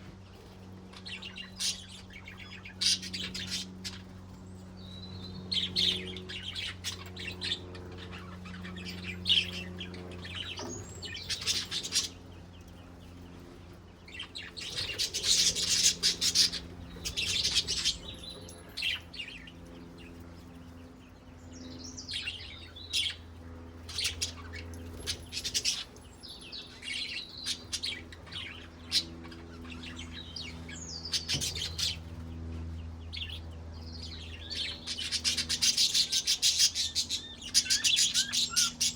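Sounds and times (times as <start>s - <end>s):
steady low hum: 0.0s - 38.9s
budgerigars chirping: 1.0s - 4.1s, 4.8s - 12.2s, 14.1s - 19.5s, 33.1s - 38.9s.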